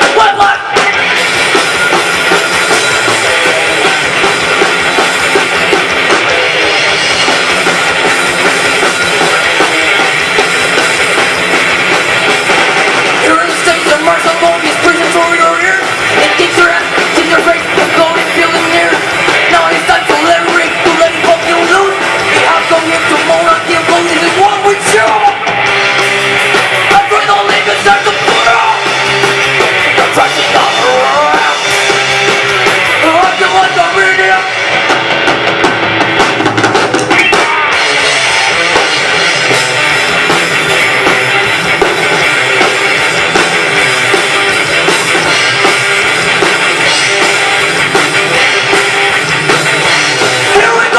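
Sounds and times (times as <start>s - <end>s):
rock band playing live: 0.0s - 50.9s.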